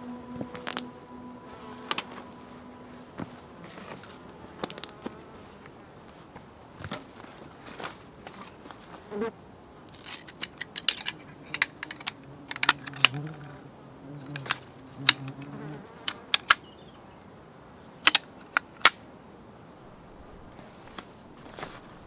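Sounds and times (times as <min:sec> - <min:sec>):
flying insect buzzing: 0:00.0 - 0:05.9, 0:11.7 - 0:16.7.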